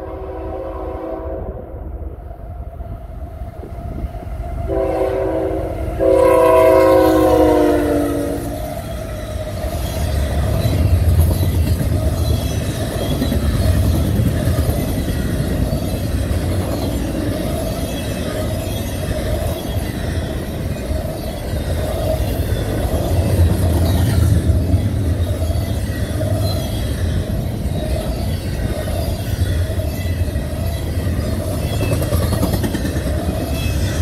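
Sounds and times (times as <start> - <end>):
locomotive air horn blasts: 0.0 - 1.6, 4.7 - 8.6
train rumbling and wheel clatter: 0.0 - 34.0.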